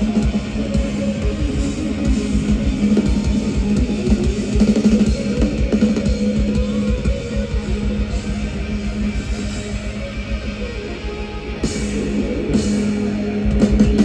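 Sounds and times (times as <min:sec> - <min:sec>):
drum kit beat: 0:00.0 - 0:14.0
electric guitar: 0:00.0 - 0:14.0
live rock band playing: 0:00.0 - 0:14.0.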